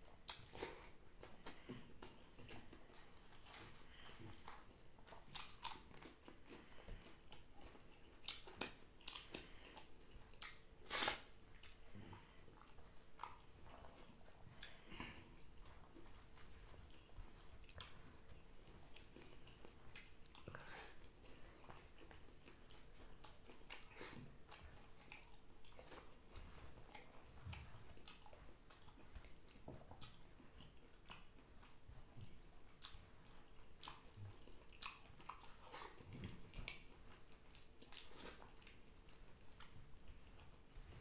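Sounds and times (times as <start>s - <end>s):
person chewing: 0.0s - 41.0s
wet mouth smacks: 10.4s - 11.8s.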